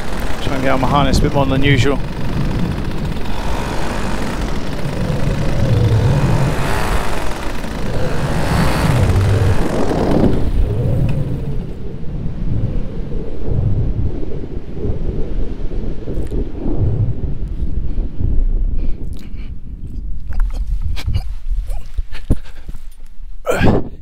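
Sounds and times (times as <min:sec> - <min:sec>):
paramotor engine and propeller: 0:00.0 - 0:12.0
wind rumble on microphone: 0:00.0 - 0:24.0.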